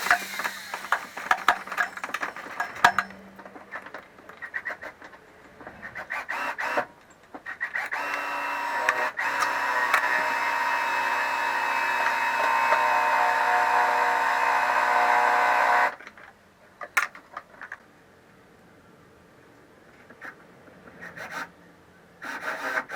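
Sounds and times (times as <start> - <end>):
electric drill running: 0.0 - 3.1
tools rattling on metal: 0.0 - 4.0.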